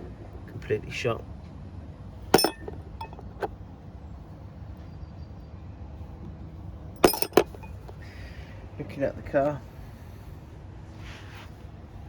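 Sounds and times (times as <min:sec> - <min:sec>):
metallic clinks of engine parts: 0:02.4 - 0:03.5, 0:07.0 - 0:08.1.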